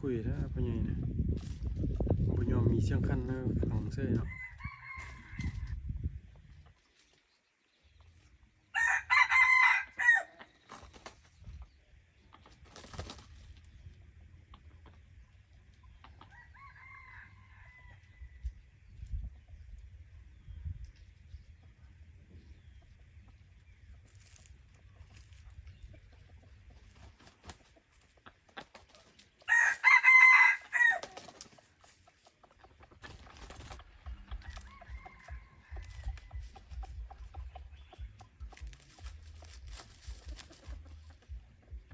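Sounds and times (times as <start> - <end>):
rooster crowing: 4.2 - 5.7, 8.7 - 10.4, 16.3 - 18.4, 29.5 - 31.0, 34.4 - 36.5.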